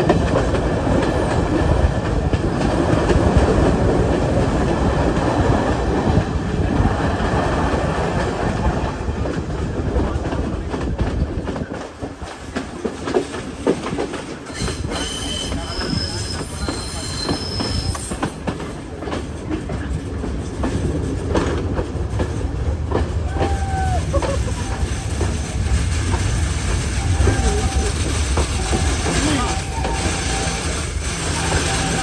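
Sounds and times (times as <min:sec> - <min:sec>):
train rumbling: 0:00.0 - 0:32.0
train wheels clacking on rails: 0:00.0 - 0:32.0
high-pitched wheel squeal: 0:14.6 - 0:18.4.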